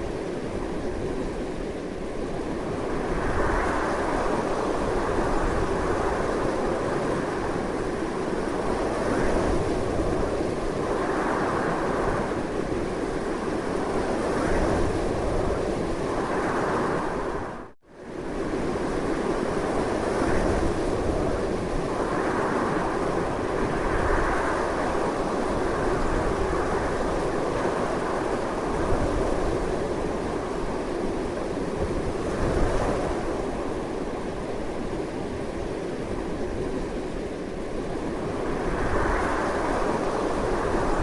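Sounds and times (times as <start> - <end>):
strong wind noise: 0.0 - 41.0.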